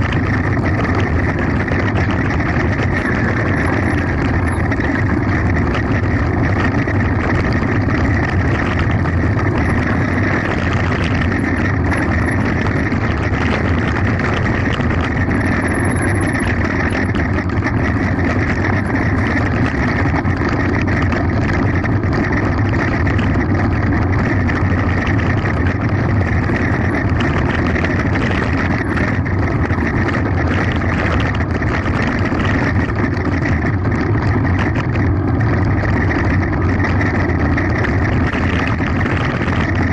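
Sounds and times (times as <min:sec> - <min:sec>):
bike rattling: 0:00.0 - 0:39.9
wind rushing on microphone: 0:00.0 - 0:39.9.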